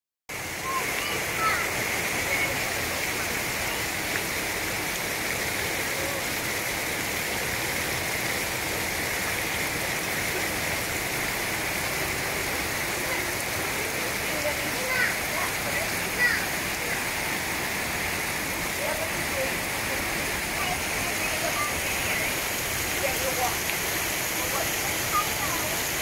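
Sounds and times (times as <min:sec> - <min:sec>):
heavy rain: 0:00.3 - 0:26.0
water pouring from gutter: 0:00.3 - 0:26.0.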